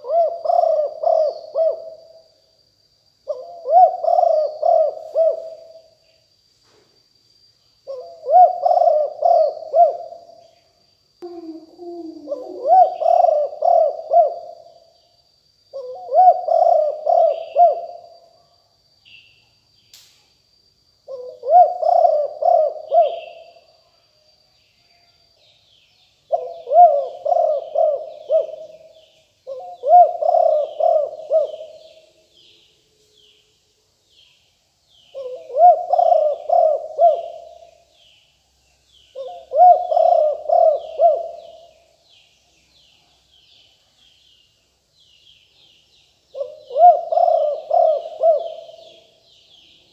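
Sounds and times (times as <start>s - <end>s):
dove cooing: 0.0s - 2.2s, 3.2s - 5.9s, 7.9s - 10.3s, 11.2s - 14.7s, 15.7s - 18.1s, 21.1s - 23.6s, 26.3s - 32.0s, 35.2s - 37.8s, 39.1s - 41.8s, 46.3s - 49.2s.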